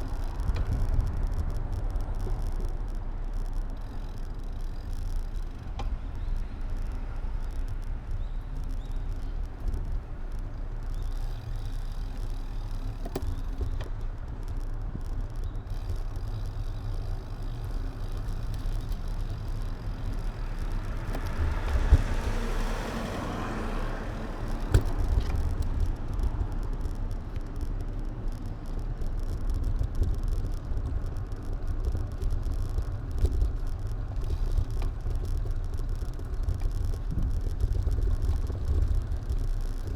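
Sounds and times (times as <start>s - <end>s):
low wind: 0.0s - 39.9s
road rumble: 0.0s - 39.9s
passing vehicle: 18.0s - 27.4s.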